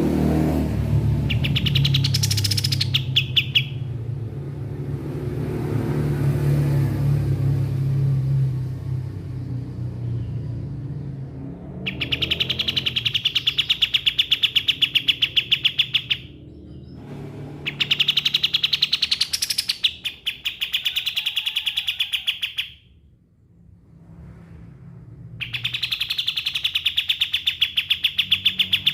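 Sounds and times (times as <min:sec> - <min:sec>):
songbird rattling song: 0:00.0 - 0:06.6, 0:10.0 - 0:23.0, 0:25.3 - 0:28.9.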